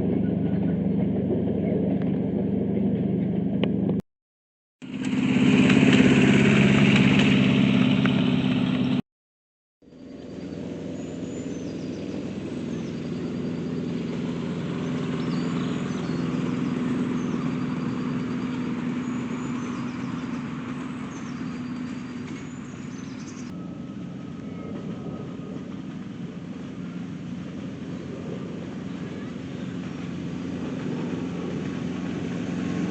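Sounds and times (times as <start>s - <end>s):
small locomotive engine running: 4.8s - 9.0s, 9.9s - 32.9s
birds chirping: 9.9s - 32.9s.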